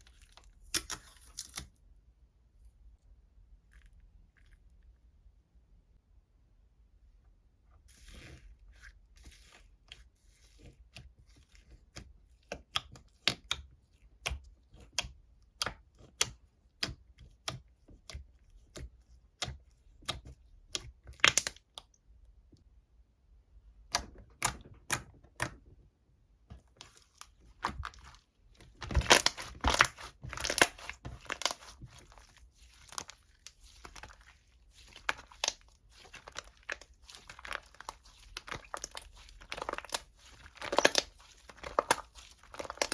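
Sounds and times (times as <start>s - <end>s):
crinkling and crackling: 26.5s - 42.9s.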